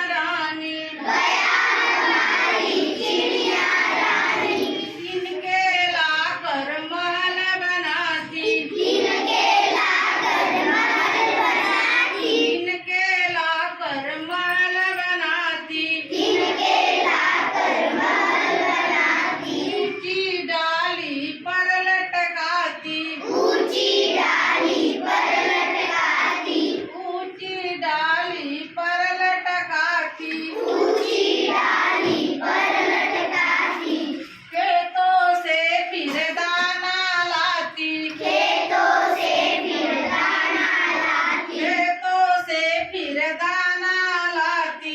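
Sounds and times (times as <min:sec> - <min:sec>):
children singing in chorus: 0:01.0 - 0:05.4, 0:08.2 - 0:12.7, 0:16.0 - 0:20.1, 0:23.2 - 0:27.2, 0:30.2 - 0:34.9, 0:37.3 - 0:42.0.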